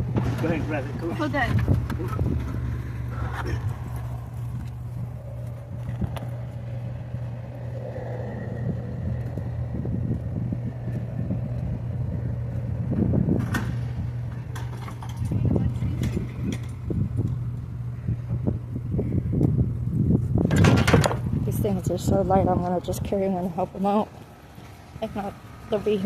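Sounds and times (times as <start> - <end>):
vehicle engine idling: 0.0 - 20.4.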